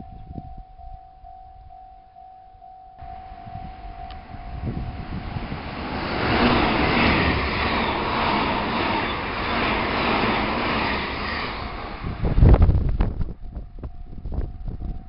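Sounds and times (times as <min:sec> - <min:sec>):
electric train passing at speed: 0:03.0 - 0:15.0.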